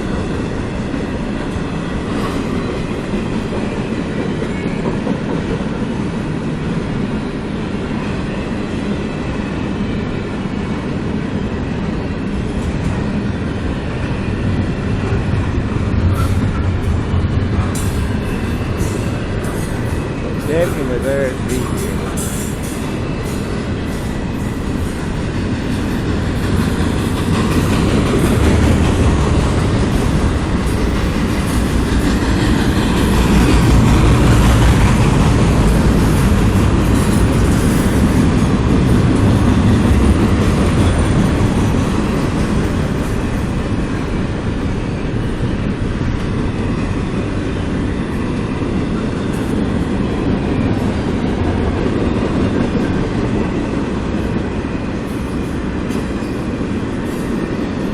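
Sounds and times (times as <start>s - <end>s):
train wheels clickety-clack: 0.0s - 6.8s, 14.5s - 57.9s
freight train rumbling past: 0.0s - 57.9s.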